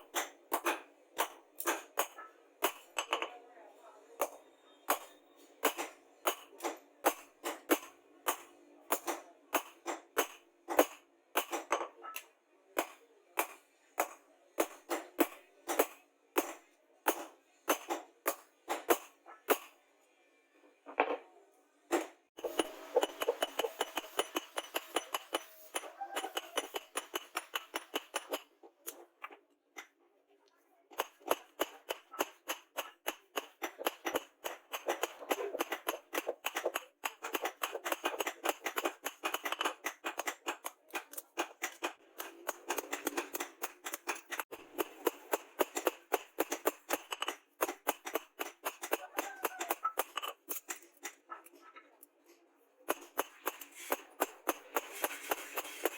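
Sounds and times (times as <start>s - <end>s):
hammer striking steel blade: 22.4s - 28.5s.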